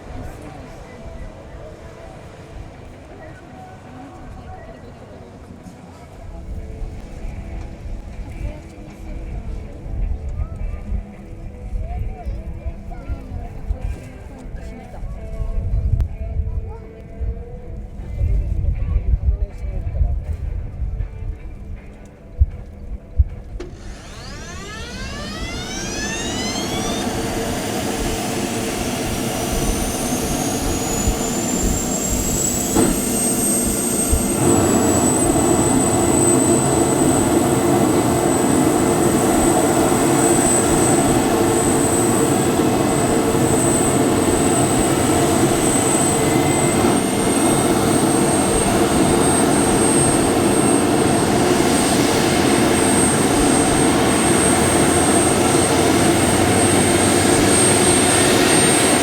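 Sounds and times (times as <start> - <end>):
jet engine spooling up: 23.6 - 59.0.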